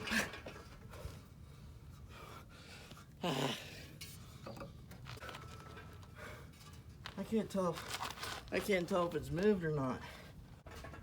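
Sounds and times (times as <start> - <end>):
man groaning from exertion: 3.2 - 3.7.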